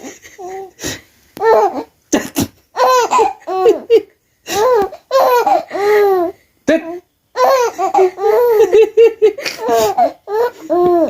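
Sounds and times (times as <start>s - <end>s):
small child laughing and babbling: 1.4s - 1.9s, 9.5s - 11.0s.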